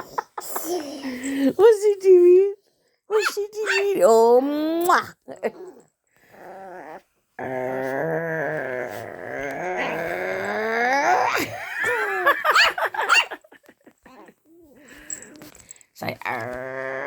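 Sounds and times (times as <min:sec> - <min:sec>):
dog yipping: 0:03.2 - 0:03.9
dog growl-whine: 0:05.5 - 0:11.4, 0:16.3 - 0:17.0.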